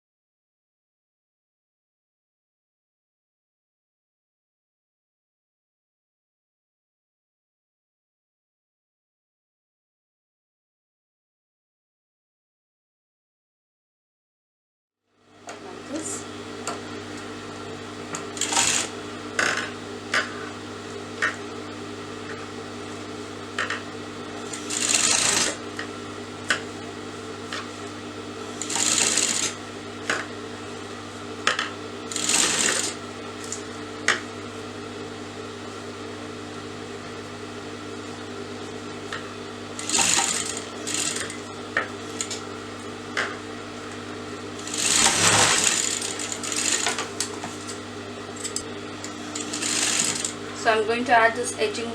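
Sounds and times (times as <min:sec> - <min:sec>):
sewing machine stitching: 0:18.1 - 0:19.7, 0:24.4 - 0:25.6, 0:28.5 - 0:29.6, 0:32.1 - 0:33.6, 0:39.8 - 0:41.4, 0:42.1 - 0:42.4, 0:44.6 - 0:47.8, 0:48.4 - 0:50.4.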